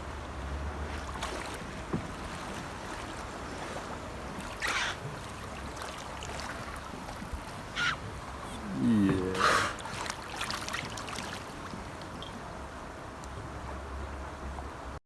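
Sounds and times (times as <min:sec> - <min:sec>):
water lapping and sloshing: 0:00.0 - 0:15.0
dolphin blowhole puff: 0:07.8 - 0:10.0.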